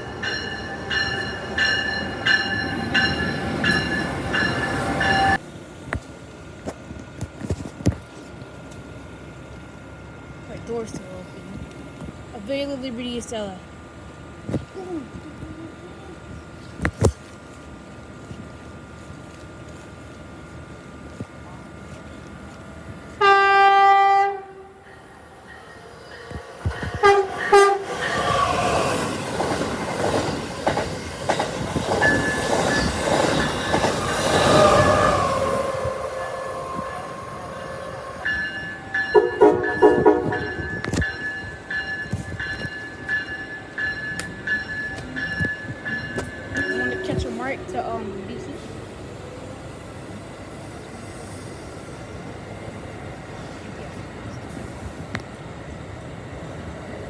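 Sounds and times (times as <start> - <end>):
train whine: 0.0 - 57.0
wheel and rail noise: 0.0 - 57.0
train horn blasts: 23.2 - 24.9, 26.6 - 28.4, 34.4 - 41.2
wheels clacking over rail joints: 25.4 - 48.0.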